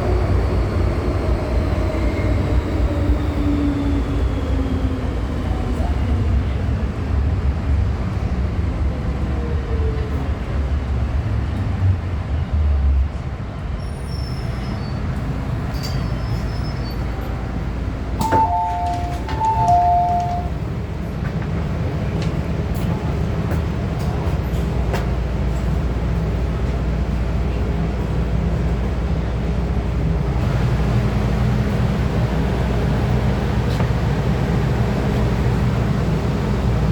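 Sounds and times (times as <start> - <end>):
steady low train hum: 0.0 - 36.9
train rumbling as it brakes: 0.0 - 36.9
two-note electronic door chime: 18.2 - 20.5.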